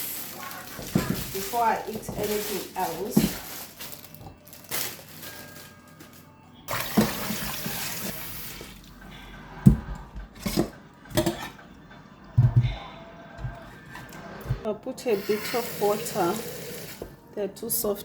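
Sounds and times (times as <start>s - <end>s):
kitchen tap running: 0.0s - 4.3s, 6.7s - 11.5s, 12.4s - 12.8s, 14.4s - 17.2s
kitchenware knocking: 9.6s - 13.6s.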